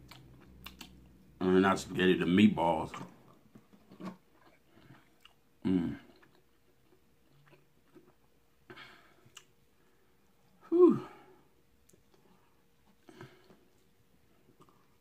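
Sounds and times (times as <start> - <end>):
person chewing food: 0.0 - 1.3, 2.9 - 9.8, 11.8 - 15.0.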